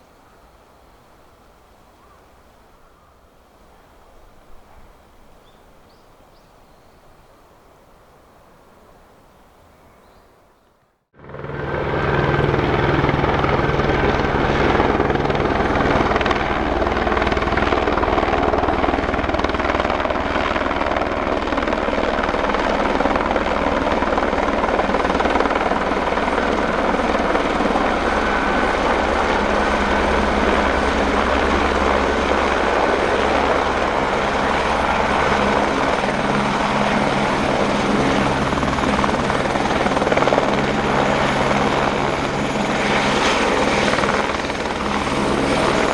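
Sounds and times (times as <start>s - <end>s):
turbine high whine: 11.2s - 21.1s
helicopter rotor beating: 11.2s - 45.9s.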